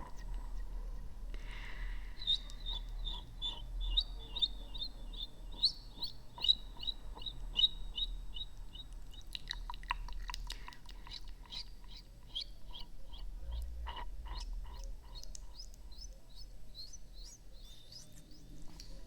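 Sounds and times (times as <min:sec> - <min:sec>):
wet mouth clicks and smacks: 0:08.9 - 0:12.1.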